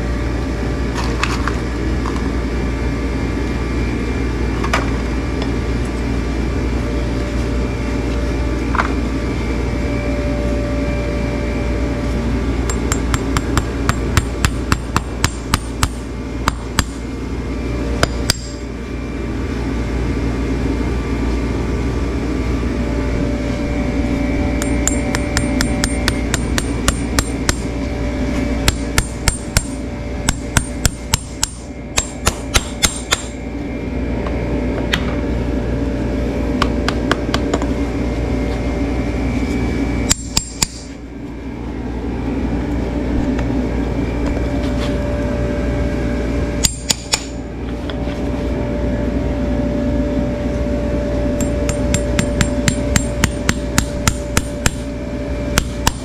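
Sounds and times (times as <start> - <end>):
steady hum: 0.0 - 56.0
hammer tapping sharp strikes: 12.7 - 17.0, 24.6 - 27.6, 28.6 - 33.3, 40.1 - 40.9, 46.6 - 47.3, 51.4 - 54.8.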